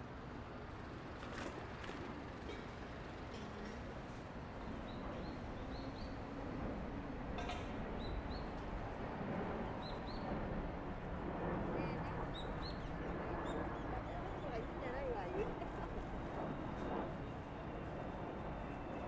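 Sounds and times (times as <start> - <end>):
rushing noise of bicycle ride: 0.0 - 19.0.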